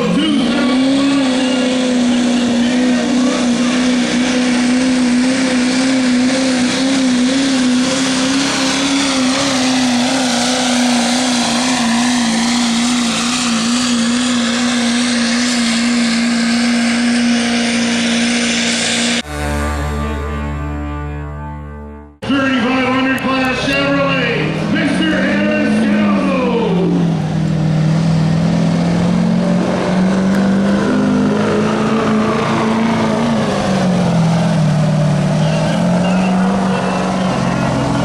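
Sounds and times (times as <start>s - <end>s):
diesel truck engine at full throttle: 0.0s - 38.0s
turbo and exhaust noise: 0.0s - 38.0s
country music: 19.2s - 27.0s.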